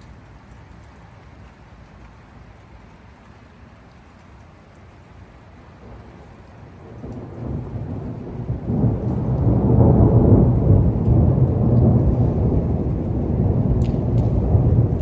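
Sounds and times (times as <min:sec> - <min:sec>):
rain: 0:00.0 - 0:15.0
thunder rumbling: 0:05.8 - 0:15.0.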